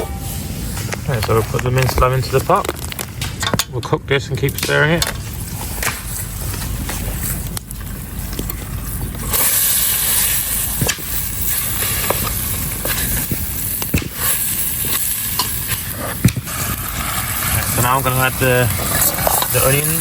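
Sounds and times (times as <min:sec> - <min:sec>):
low steady rumble: 0:00.0 - 0:20.0
meat sizzling in a pot: 0:05.0 - 0:20.0
stirring clicks: 0:10.1 - 0:20.0.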